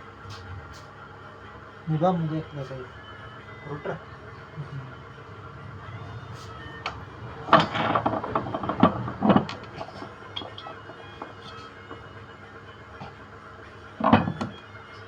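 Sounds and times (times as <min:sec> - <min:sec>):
knocks and clatter of motor parts: 0:05.9 - 0:15.0.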